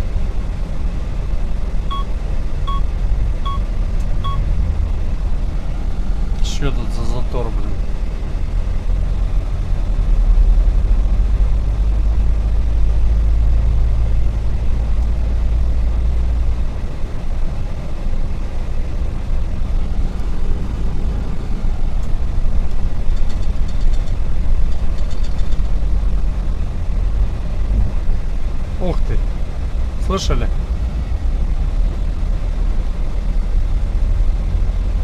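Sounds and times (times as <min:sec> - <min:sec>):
truck engine rumble: 0:00.0 - 0:35.0.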